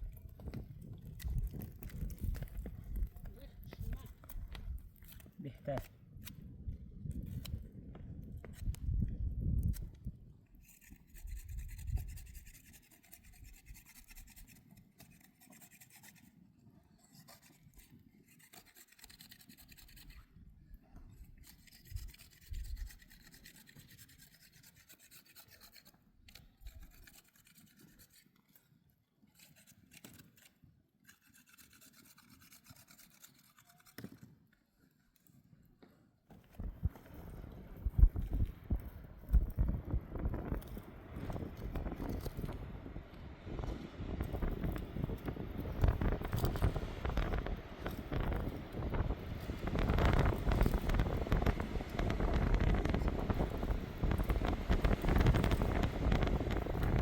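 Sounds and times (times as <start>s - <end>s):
faint rasping and rubbing: 10.6s - 42.7s.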